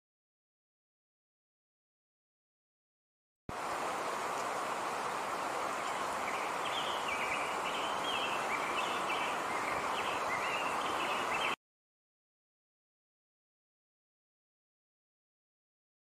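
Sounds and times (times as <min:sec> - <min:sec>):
small bird chirping: 0:05.8 - 0:11.6.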